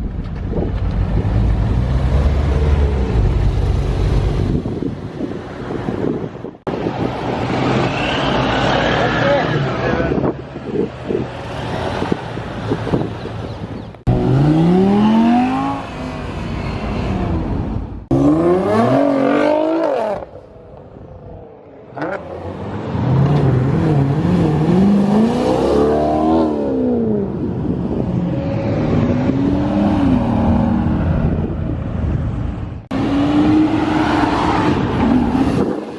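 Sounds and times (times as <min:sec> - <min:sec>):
sports car engines revving past: 0:06.9 - 0:20.4, 0:21.6 - 0:32.1, 0:32.9 - 0:35.9.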